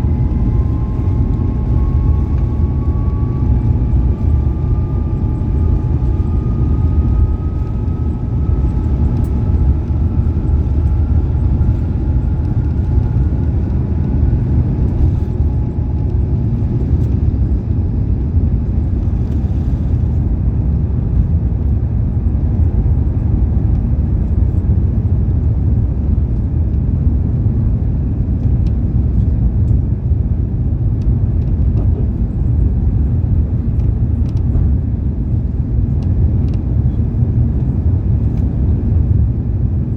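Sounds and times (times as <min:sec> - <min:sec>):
faint rising whine: 0:00.0 - 0:17.7
aircraft cabin engine rumble: 0:00.0 - 0:39.9.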